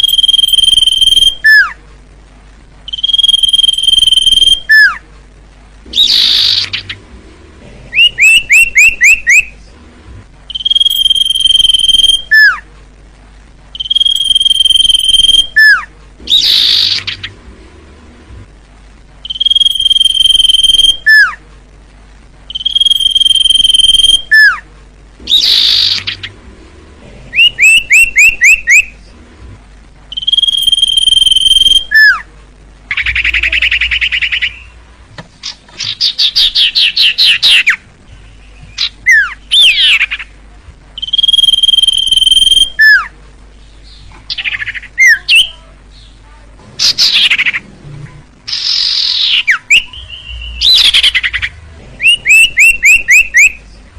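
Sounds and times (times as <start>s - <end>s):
bird whistling: 0.0s - 1.8s, 2.9s - 5.0s, 5.9s - 7.0s, 7.9s - 9.5s, 10.5s - 12.6s, 13.7s - 17.3s, 19.2s - 21.4s, 22.5s - 24.6s, 25.3s - 26.3s, 27.3s - 28.9s, 30.1s - 32.2s, 32.9s - 34.8s, 35.8s - 40.3s, 41.0s - 43.1s, 48.5s - 53.6s.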